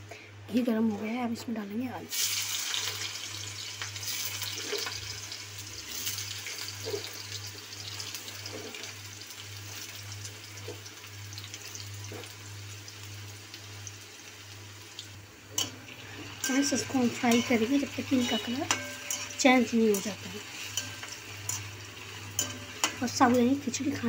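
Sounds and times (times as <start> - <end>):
potatoes sizzling in hot fat: 2.0 - 24.0
low steady hum: 9.1 - 24.0.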